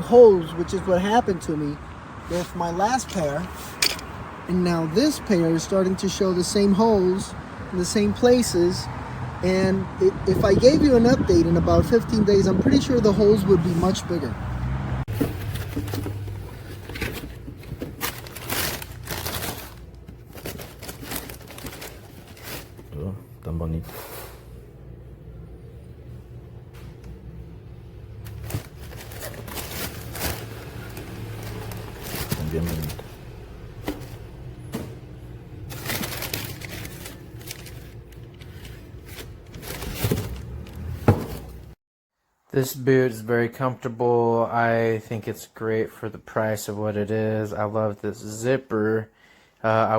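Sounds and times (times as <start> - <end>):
rustling crinkling handling: 15.1 - 22.9, 28.2 - 34.4, 35.6 - 41.8.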